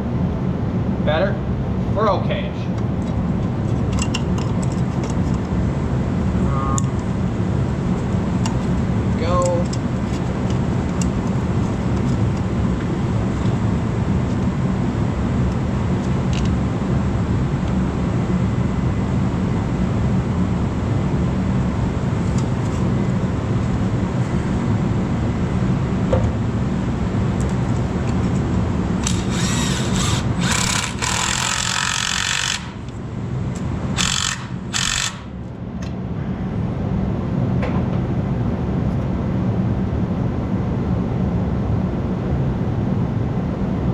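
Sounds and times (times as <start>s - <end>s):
motor droning: 29.0s - 33.0s, 34.0s - 35.3s
short bursts of loud noise: 34.0s - 35.3s.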